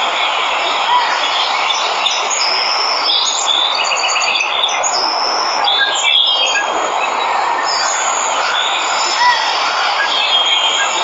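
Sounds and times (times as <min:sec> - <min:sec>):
birds chirping and whistling: 0:00.2 - 0:11.0.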